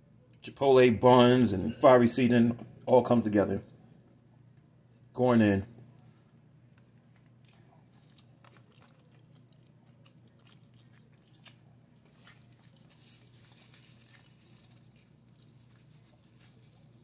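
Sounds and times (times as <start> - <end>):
crunching and chewing: 5.8 - 17.0.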